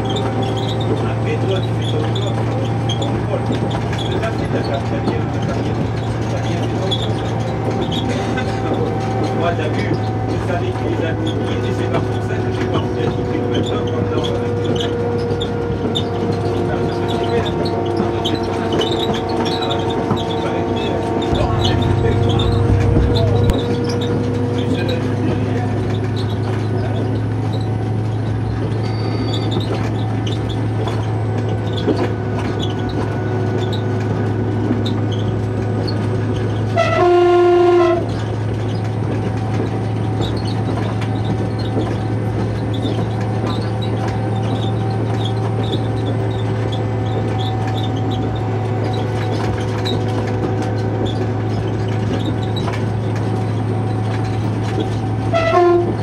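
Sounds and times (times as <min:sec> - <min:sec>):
diesel railcar engine drone: 0:00.0 - 0:56.0
train horn: 0:36.8 - 0:38.1, 0:55.3 - 0:56.0.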